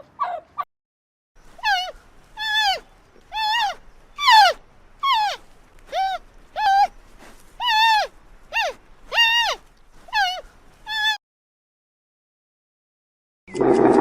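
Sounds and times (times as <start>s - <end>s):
animal calling: 1.4s - 11.2s.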